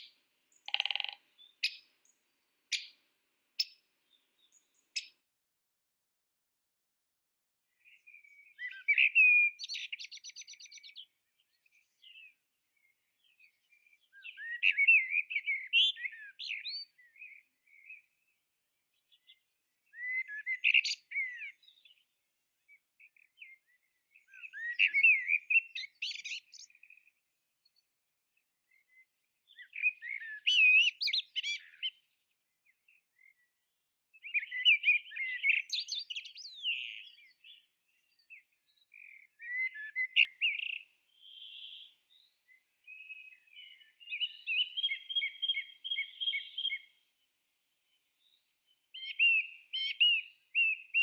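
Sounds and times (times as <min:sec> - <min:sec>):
songbird warbling: 0:00.0 - 0:02.0, 0:02.7 - 0:03.0, 0:39.0 - 0:41.9, 0:42.5 - 0:46.9, 0:49.0 - 0:51.0.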